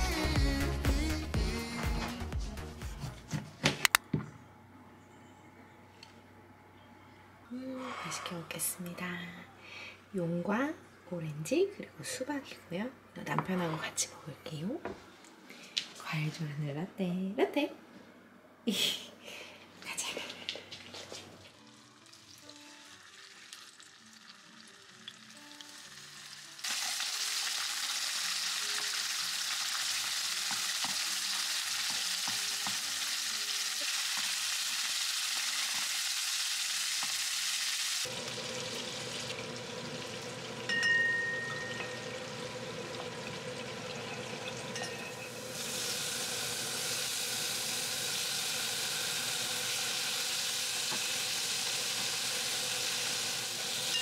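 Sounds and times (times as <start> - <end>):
chicken sizzling in oil: 21.5 - 54.0.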